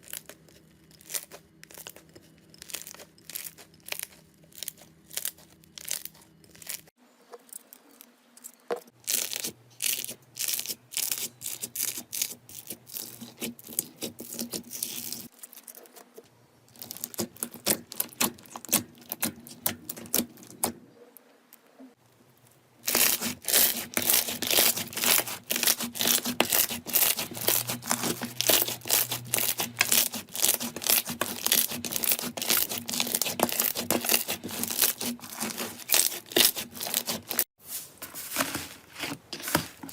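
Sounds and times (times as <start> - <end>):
slime crackling and popping: 0.0 - 6.9, 22.8 - 37.4
hands squeezing slime: 22.8 - 37.5.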